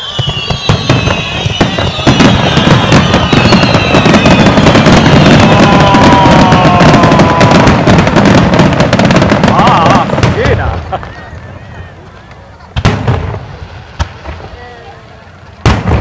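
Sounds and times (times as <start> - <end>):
falling firework whistles: 0.0 - 10.1
fireworks bursts and crackles: 0.0 - 16.0.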